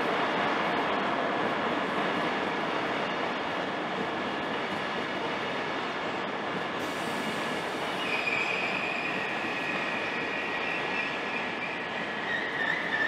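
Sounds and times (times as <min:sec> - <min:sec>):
train wheels on rail: 0:00.0 - 0:13.0
high wheel squeal: 0:07.9 - 0:13.0.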